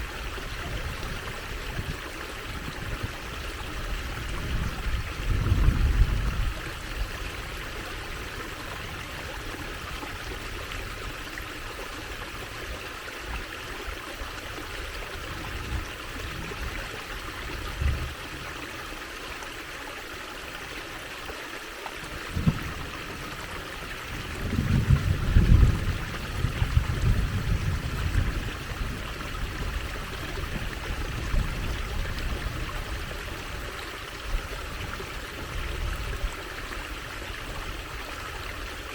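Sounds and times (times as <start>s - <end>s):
water trickling in stream: 0.0s - 38.9s.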